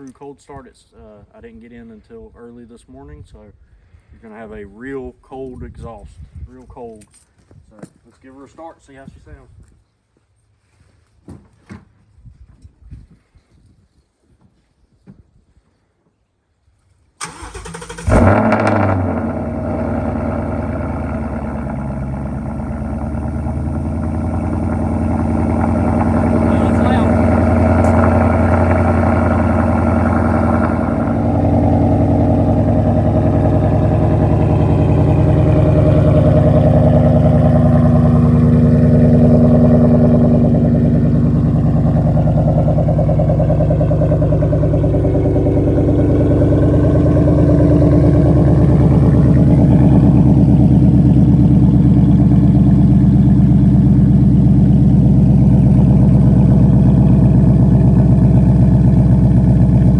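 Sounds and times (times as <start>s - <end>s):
car engine running: 17.4s - 59.9s.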